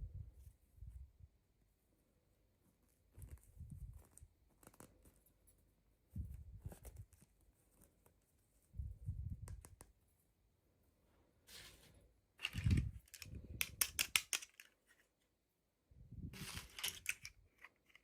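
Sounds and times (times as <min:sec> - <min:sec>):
toys and packaging handled: 0:11.5 - 0:15.3, 0:16.3 - 0:18.0.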